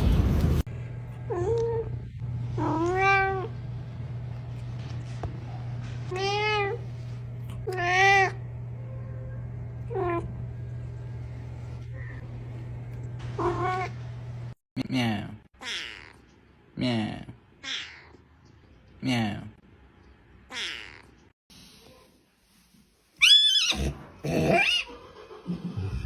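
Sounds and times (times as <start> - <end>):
steady low hum: 0.0 - 14.6
cat meowing: 2.6 - 3.5.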